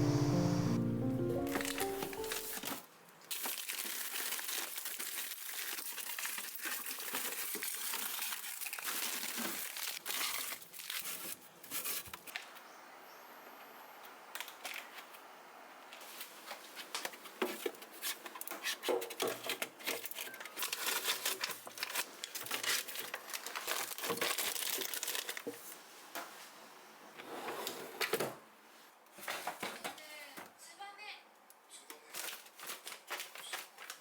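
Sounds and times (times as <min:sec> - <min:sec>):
plastic crinkling and rustling: 0:01.5 - 0:12.5, 0:16.0 - 0:25.9, 0:32.0 - 0:34.0.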